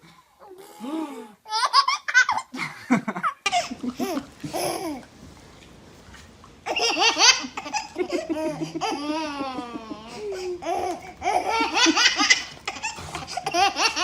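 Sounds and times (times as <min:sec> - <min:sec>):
high-pitched laughter: 0:06.7 - 0:14.0.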